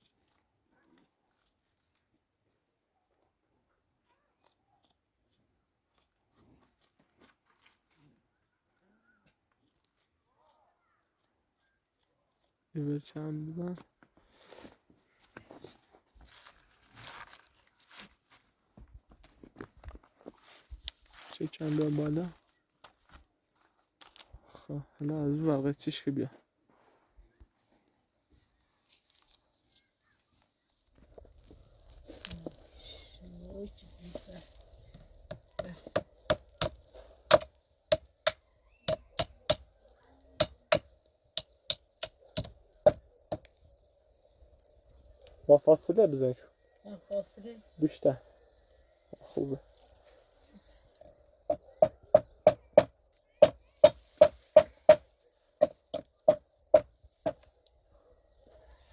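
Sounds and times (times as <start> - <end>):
material rustling and crinkling: 13.5 - 24.5, 26.2 - 35.6.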